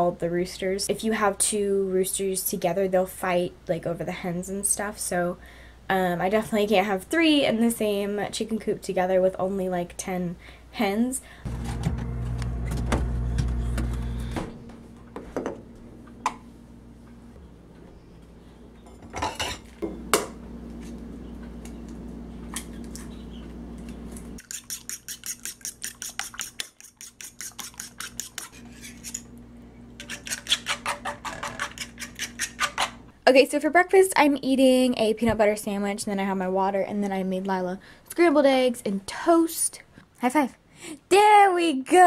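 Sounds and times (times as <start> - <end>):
low hum: 11.2 - 24.4
dishes clinking and scraping: 18.8 - 19.8.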